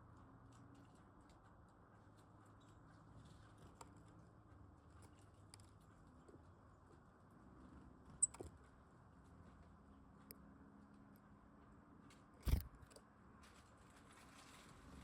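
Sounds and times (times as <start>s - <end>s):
low steady background hum: 0.0s - 15.0s
birds pecking at seed: 12.4s - 12.7s.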